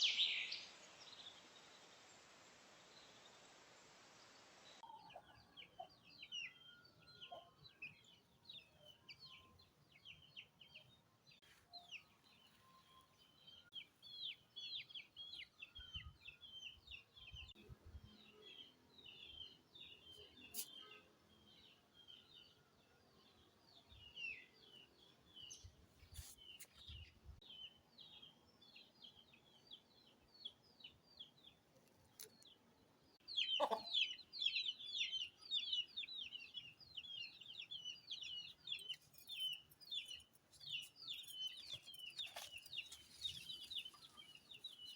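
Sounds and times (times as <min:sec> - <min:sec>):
birds chirping: 0:23.2 - 0:44.9.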